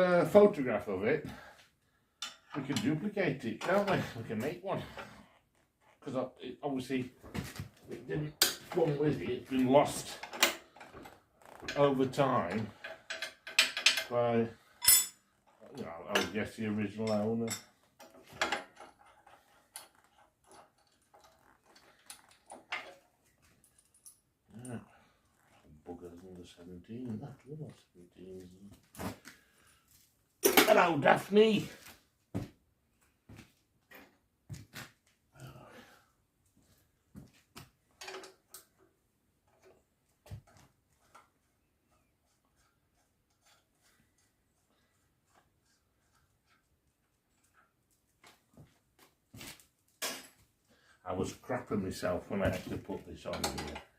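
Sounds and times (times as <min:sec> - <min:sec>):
metal hand tools clinking: 0:14.7 - 0:15.2.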